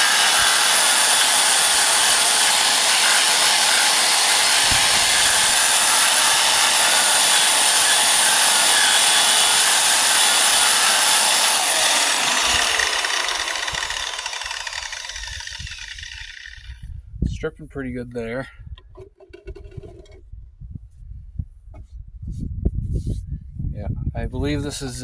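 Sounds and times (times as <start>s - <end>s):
power tool stripping paint: 0.0s - 16.8s.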